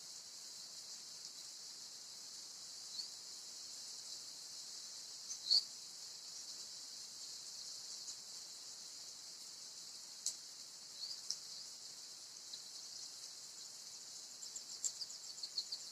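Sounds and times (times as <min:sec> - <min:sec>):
high-pitched hiss: 0:00.0 - 0:15.9
canary chirps: 0:05.2 - 0:05.8, 0:10.9 - 0:11.4, 0:14.3 - 0:15.9.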